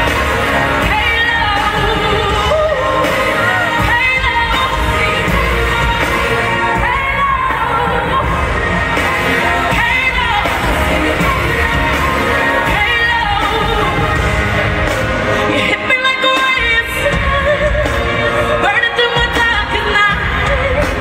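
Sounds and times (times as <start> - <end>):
live pop band: 0.0 - 21.0.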